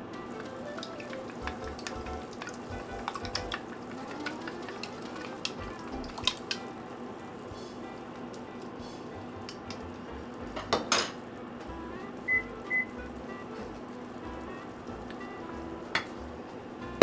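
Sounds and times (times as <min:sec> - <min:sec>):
food sizzling: 0:00.0 - 0:17.0.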